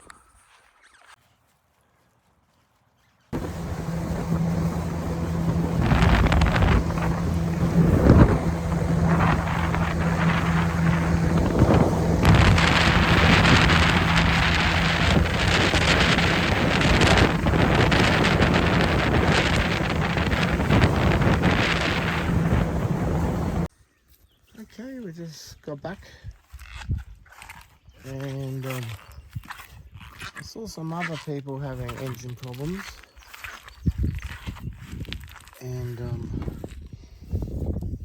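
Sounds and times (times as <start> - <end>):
outboard motor running: 3.4 - 23.7
wind buffeting microphone: 3.4 - 23.7, 33.8 - 35.3, 35.9 - 38.0.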